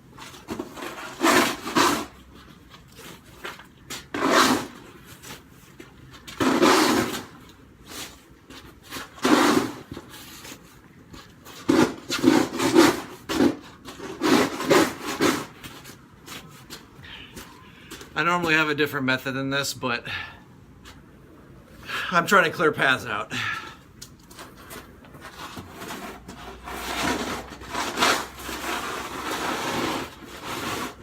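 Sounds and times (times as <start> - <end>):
snow shovel scraping snow: 0.5 - 2.2, 4.1 - 5.3, 6.4 - 7.3, 8.9 - 10.6, 11.6 - 15.6, 25.2 - 31.0.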